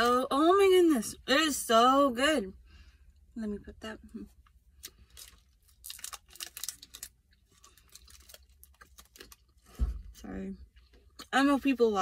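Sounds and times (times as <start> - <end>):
person chewing: 4.8 - 9.7
plastic wrapper crinkling: 4.8 - 9.7.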